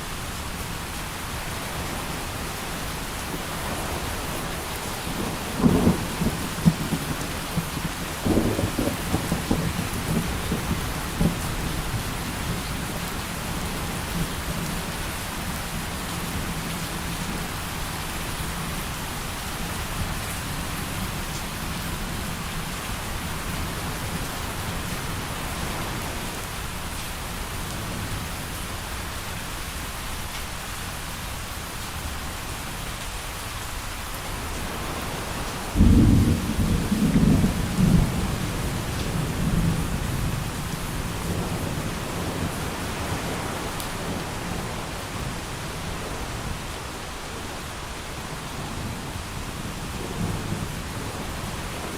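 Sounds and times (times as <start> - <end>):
rain falling: 0.0 - 51.9
low thunder rumbling: 3.7 - 12.9, 34.6 - 44.8
loud thunderclap: 5.2 - 11.4, 35.8 - 40.3.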